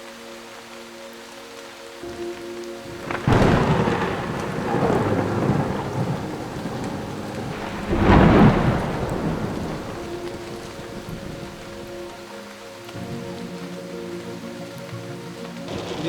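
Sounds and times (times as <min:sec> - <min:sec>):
rain falling: 0:00.0 - 0:16.0
thunder cracking and rumbling: 0:02.1 - 0:13.6, 0:15.6 - 0:16.0.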